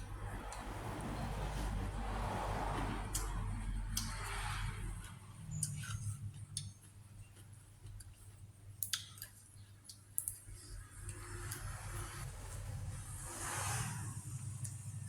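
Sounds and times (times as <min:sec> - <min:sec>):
person chewing with mouth clicks: 0:03.0 - 0:11.8.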